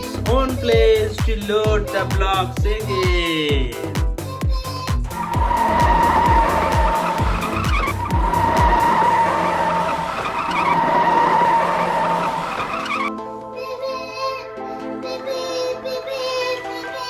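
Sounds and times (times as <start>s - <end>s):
music with thumping beat: 0.0s - 8.9s.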